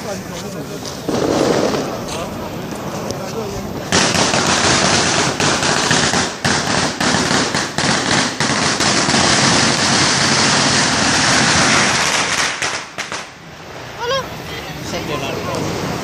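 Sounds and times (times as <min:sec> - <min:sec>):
firecrackers crackling: 0:00.0 - 0:16.0
sharp firecracker bangs: 0:01.0 - 0:13.4.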